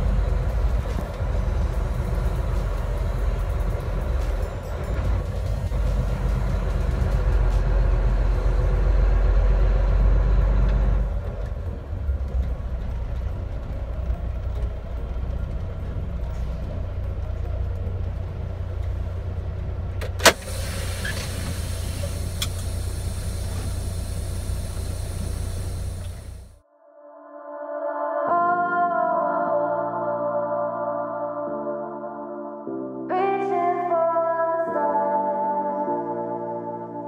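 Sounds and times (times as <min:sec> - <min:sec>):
truck diesel engine rumble: 0:00.0 - 0:26.6.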